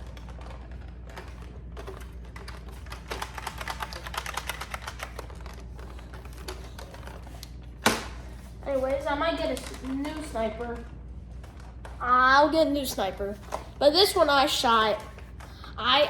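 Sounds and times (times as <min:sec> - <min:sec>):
plastic toy blaster clicking and rattling: 0:00.0 - 0:07.2.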